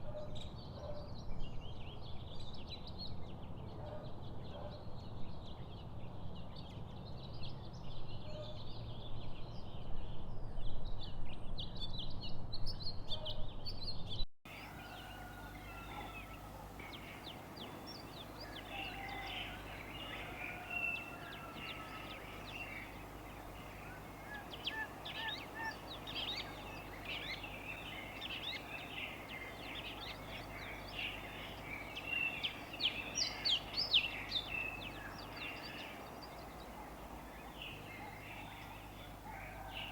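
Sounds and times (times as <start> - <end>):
birds chirping and singing: 14.5 - 39.9
steady background hiss: 14.5 - 39.9.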